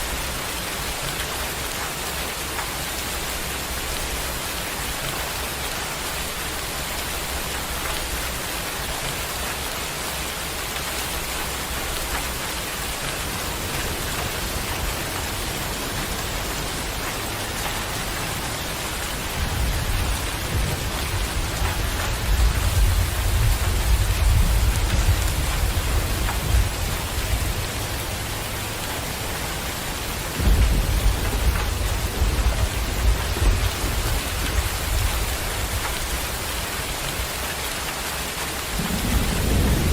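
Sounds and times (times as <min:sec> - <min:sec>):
heavy rain hissing: 0:00.0 - 0:39.9
thunder rumbling: 0:11.2 - 0:37.3, 0:38.7 - 0:39.9.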